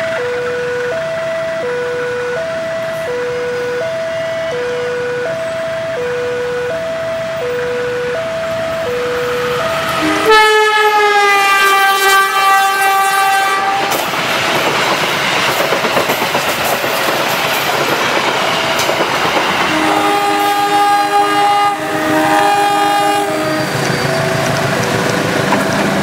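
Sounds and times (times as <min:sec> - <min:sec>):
locomotive horn: 0:07.4 - 0:14.1, 0:19.7 - 0:24.8
horn chord: 0:09.8 - 0:14.0, 0:19.7 - 0:23.8
train wheels clattering: 0:13.7 - 0:20.7, 0:23.4 - 0:26.0.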